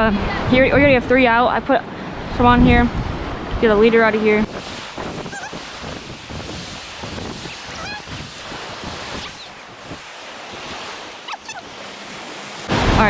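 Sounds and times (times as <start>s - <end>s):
wind buffeting microphone: 2.2s - 3.8s, 4.4s - 13.0s
waves washing in: 4.4s - 13.0s.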